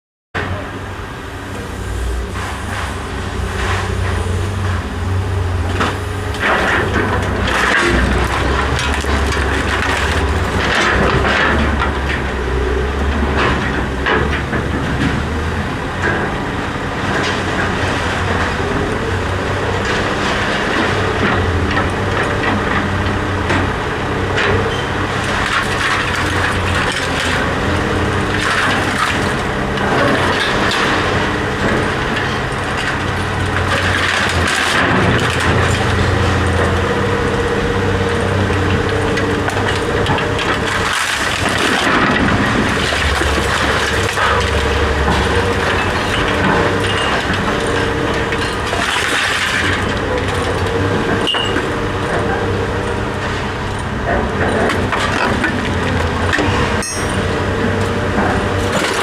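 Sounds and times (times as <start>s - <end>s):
low engine-like hum: 0.4s - 59.0s
metal knocks and clanks: 54.1s - 59.0s.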